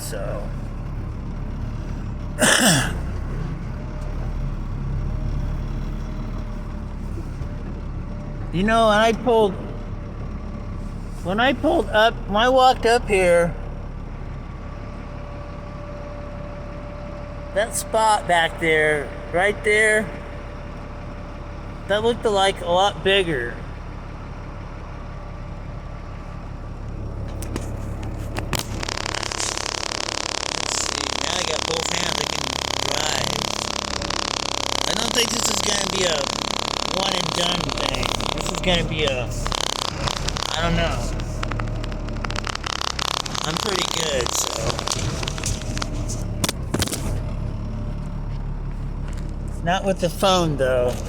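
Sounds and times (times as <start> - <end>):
truck engine running: 0.0 - 51.0
sharp clicks: 27.3 - 47.8.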